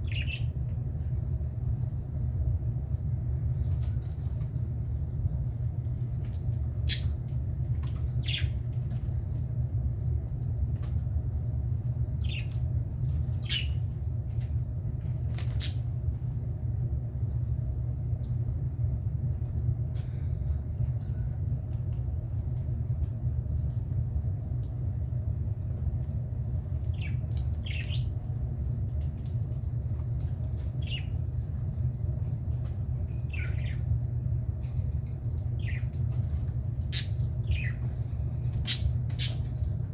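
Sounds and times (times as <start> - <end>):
budgerigars squawking and chirping: 0.0 - 0.5, 13.4 - 13.8, 26.9 - 28.1, 35.6 - 35.9, 36.9 - 37.8, 38.6 - 39.5
steady low hum: 0.0 - 39.9.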